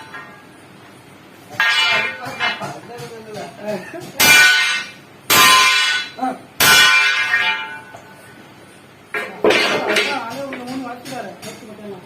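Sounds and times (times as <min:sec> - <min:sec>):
hammer clanging on steel: 0:01.5 - 0:08.1.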